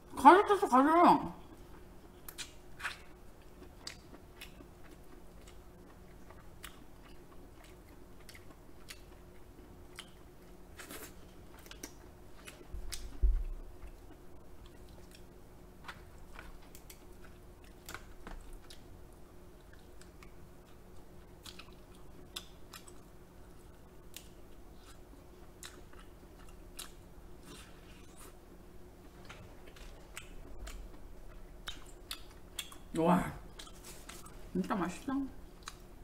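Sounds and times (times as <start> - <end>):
close chewing and biting: 2.1 - 19.0, 19.6 - 23.1.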